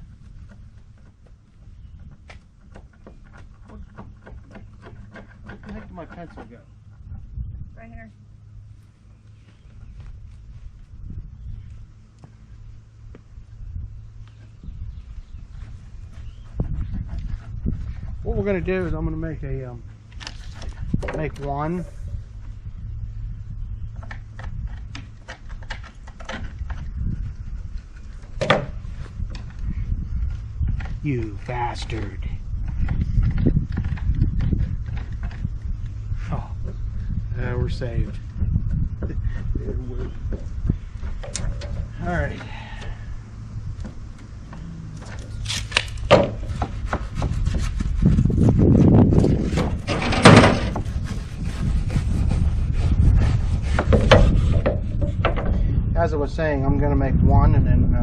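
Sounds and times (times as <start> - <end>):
steady low rumble: 0.0 - 2.8, 3.4 - 58.0
wood scraping and rubbing: 0.0 - 7.1, 15.4 - 19.1, 19.8 - 22.7, 23.9 - 55.8
sharp knocks and clicks: 2.0 - 6.7.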